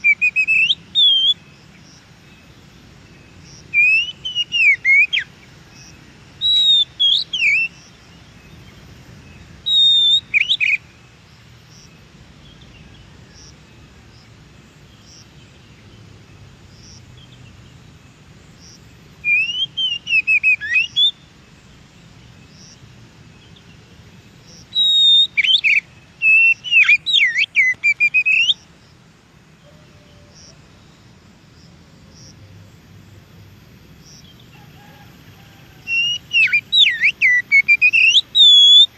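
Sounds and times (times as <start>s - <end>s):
bird whistling song: 0.0s - 1.5s, 3.6s - 7.8s, 9.4s - 10.8s, 19.2s - 21.3s, 24.5s - 28.6s, 35.8s - 38.9s
faint steady hiss: 0.0s - 38.9s.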